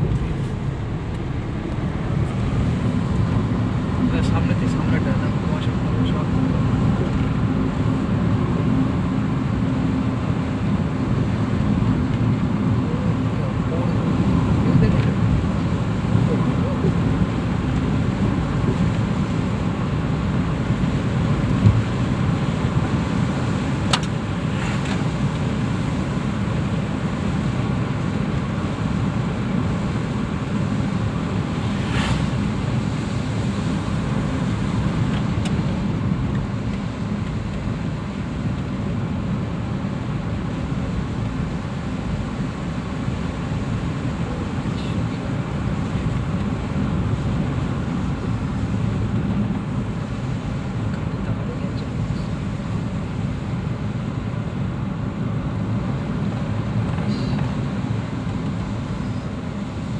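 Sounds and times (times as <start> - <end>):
road and engine rumble: 0.0 - 59.9.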